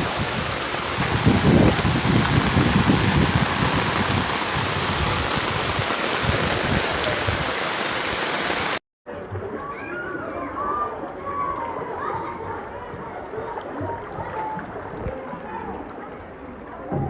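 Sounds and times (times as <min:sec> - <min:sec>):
heavy rain pouring: 0:00.0 - 0:08.8.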